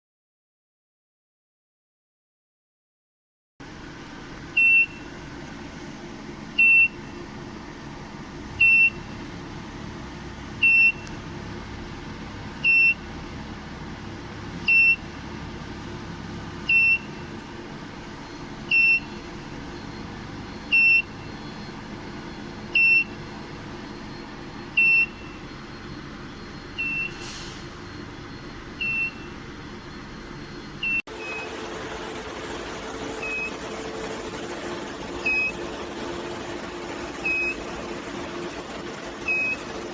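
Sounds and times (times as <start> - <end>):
electronic alarm beeps: 3.6 - 31.4
machine hum: 3.6 - 39.1.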